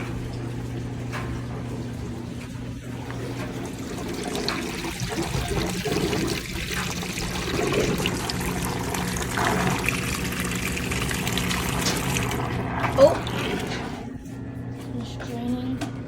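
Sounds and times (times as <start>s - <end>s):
drain pump humming: 0.0s - 16.0s.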